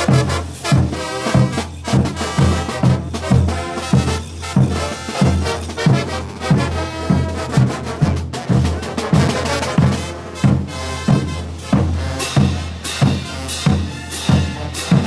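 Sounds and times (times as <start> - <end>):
brass horns playing: 0.0 - 15.0
bass drum beat: 8.0 - 15.0.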